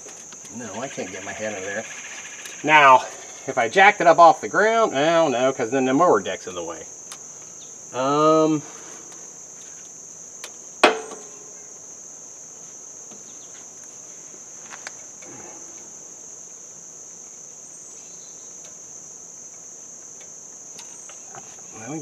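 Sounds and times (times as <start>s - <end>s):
crickets trilling: 0.0s - 22.0s
sharp knock on metal: 10.8s - 11.3s.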